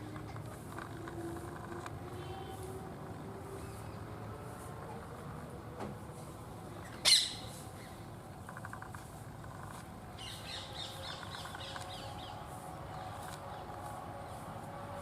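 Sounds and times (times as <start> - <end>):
parakeet shrill calls: 6.9 - 7.5.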